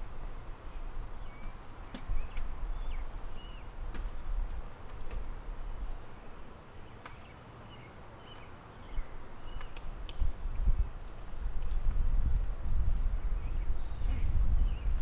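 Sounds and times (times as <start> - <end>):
birds chirping: 0.2 - 4.4, 5.7 - 9.9.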